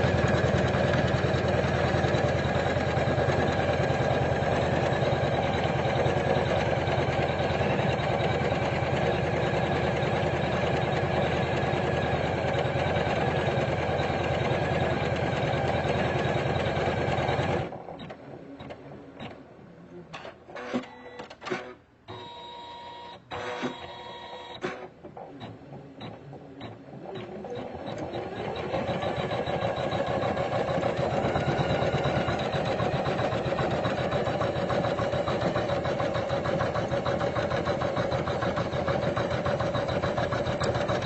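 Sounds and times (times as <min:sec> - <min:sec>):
embroidery machine stitching: 0:00.0 - 0:19.4, 0:23.3 - 0:41.0
machine clicks: 0:31.2 - 0:41.0.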